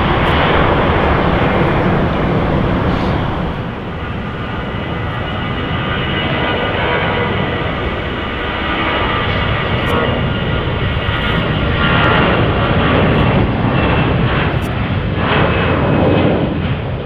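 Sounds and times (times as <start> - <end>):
thin high whine: 0.0 - 13.2
jet engines rushing: 0.0 - 17.0.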